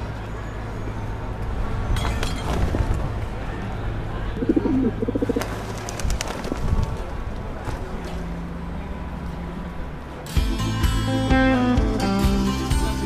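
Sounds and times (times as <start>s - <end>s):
bird cooing: 4.4s - 5.5s.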